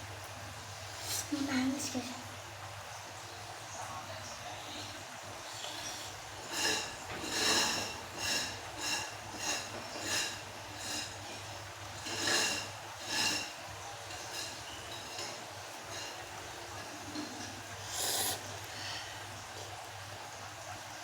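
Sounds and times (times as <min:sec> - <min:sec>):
person breathing sharply and sniffing: 0:17.8 - 0:19.2.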